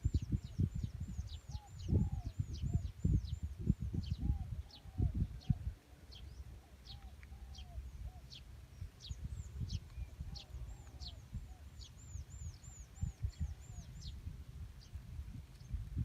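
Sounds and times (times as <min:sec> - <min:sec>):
low rumble of wind: 0:00.0 - 0:16.0
birds calling: 0:04.0 - 0:14.2.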